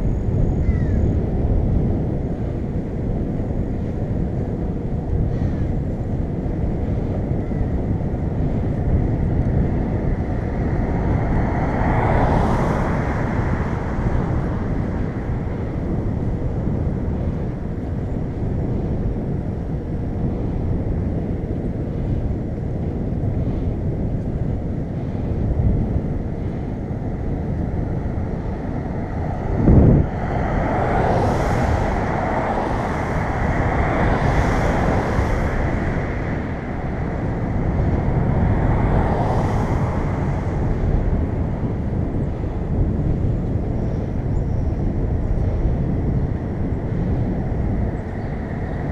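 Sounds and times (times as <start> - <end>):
wind noise on microphone: 0.0 - 48.9
vehicle passing: 8.7 - 16.8, 25.3 - 48.9.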